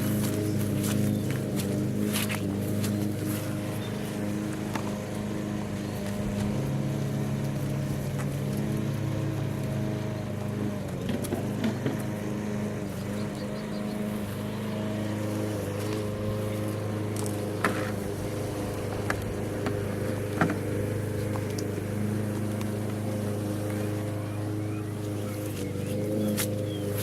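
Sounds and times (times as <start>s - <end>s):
motor running steadily: 0.0s - 27.0s.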